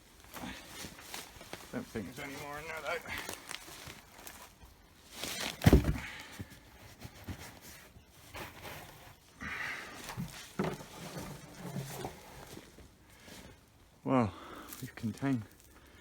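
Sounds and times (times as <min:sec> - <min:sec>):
soil rustling: 0:00.0 - 0:16.0
heavy thump: 0:05.6 - 0:06.2
scraping and knocks: 0:10.1 - 0:12.8.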